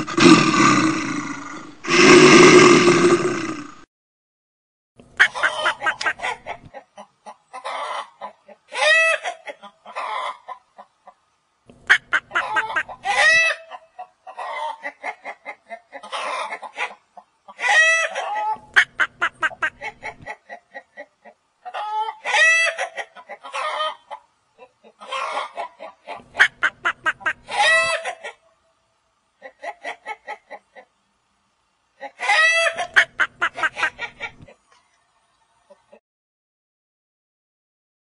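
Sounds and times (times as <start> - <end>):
chicken clucking: 5.2 - 11.2, 11.9 - 28.6, 29.4 - 31.0, 32.0 - 36.0.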